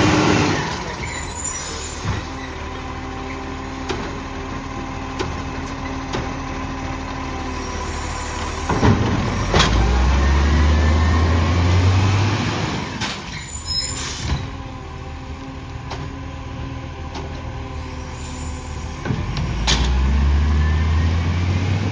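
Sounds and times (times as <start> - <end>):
garbage truck diesel engine: 0.0 - 21.9
clunks and knocks: 5.1 - 6.5, 8.6 - 10.1.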